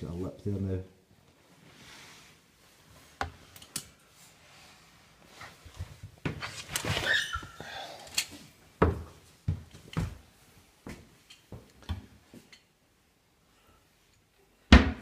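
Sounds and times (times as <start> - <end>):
door squeak: 6.9 - 7.6.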